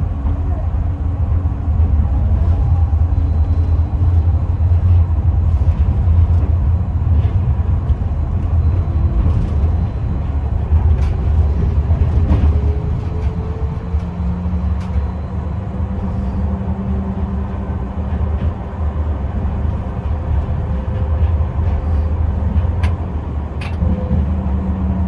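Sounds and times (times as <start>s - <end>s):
tram wheels rumbling on rails: 0.0s - 25.0s
light rattles and clicks: 19.4s - 24.2s.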